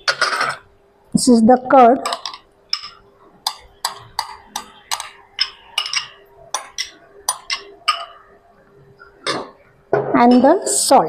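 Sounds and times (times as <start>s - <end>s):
spoon clinking against a bowl: 2.1s - 8.2s.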